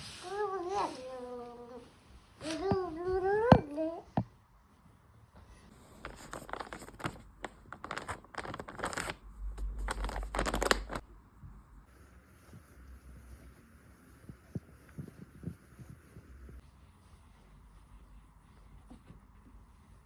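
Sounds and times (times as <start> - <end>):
rustling and tearing: 5.7 - 11.0
low hum: 9.1 - 11.8.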